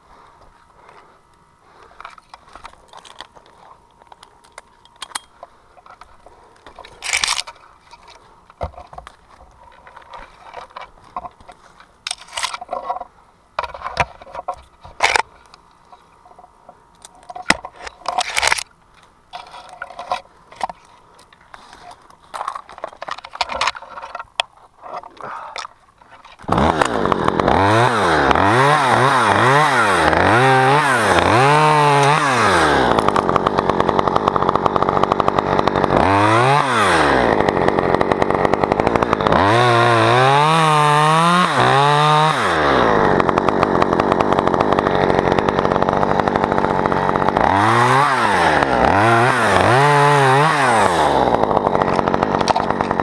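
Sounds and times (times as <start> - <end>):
chainsaw revving: 26.4 - 53.0.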